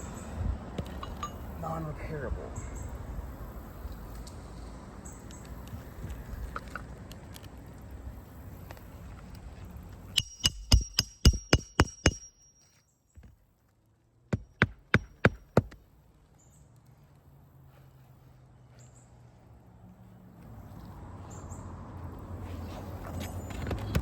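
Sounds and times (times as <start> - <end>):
hammer driving nails into shingle: 10.2 - 12.4, 14.3 - 15.8.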